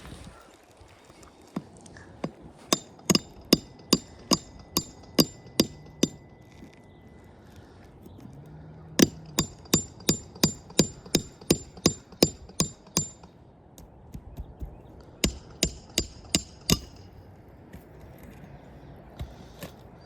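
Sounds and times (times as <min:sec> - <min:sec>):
hammer striking metal: 0:02.7 - 0:06.4, 0:09.0 - 0:13.9, 0:15.2 - 0:17.2.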